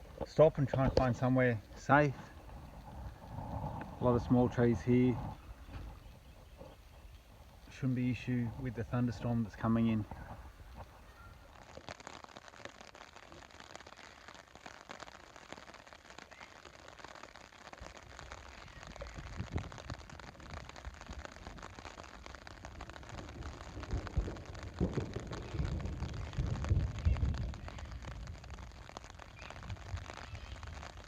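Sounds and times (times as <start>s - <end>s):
low rumbling thumps: 0.0s - 10.9s
rain pattering: 0.0s - 31.0s.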